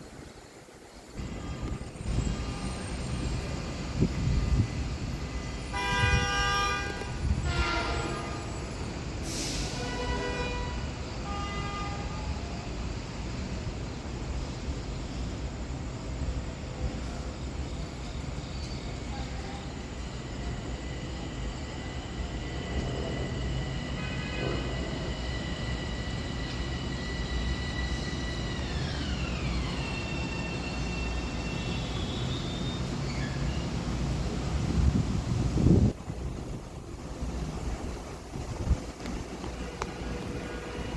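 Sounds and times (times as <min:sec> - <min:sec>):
train rumble: 0:00.0 - 0:40.9
train horn blasts: 0:01.2 - 0:03.0, 0:05.7 - 0:08.8, 0:09.7 - 0:12.4, 0:23.9 - 0:24.9, 0:39.5 - 0:40.9.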